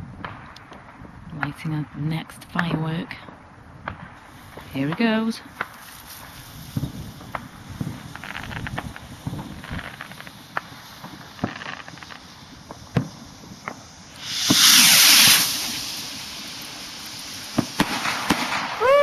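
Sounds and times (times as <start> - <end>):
firework rockets launching with hiss: 0.0 - 19.0
sharp pops: 2.4 - 19.0.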